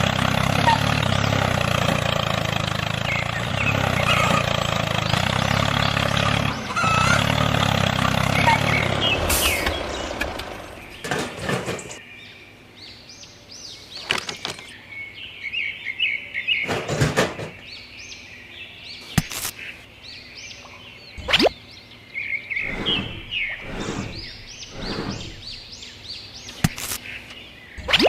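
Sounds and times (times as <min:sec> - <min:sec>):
small birds chirping: 0:02.9 - 0:15.5, 0:17.6 - 0:28.0
quick rising whoosh: 0:21.2 - 0:21.5, 0:22.6 - 0:25.8.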